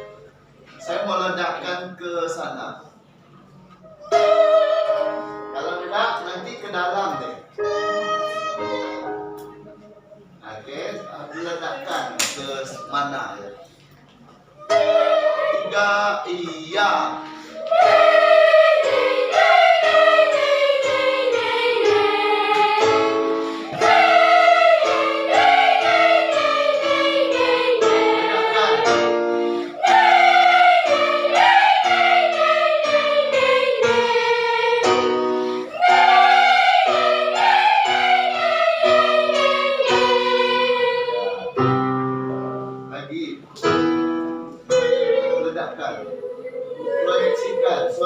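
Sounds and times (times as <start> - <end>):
children's choir singing: 3.8 - 9.4, 14.6 - 41.9, 44.7 - 48.0
accompaniment chords: 4.0 - 10.4, 14.6 - 48.0.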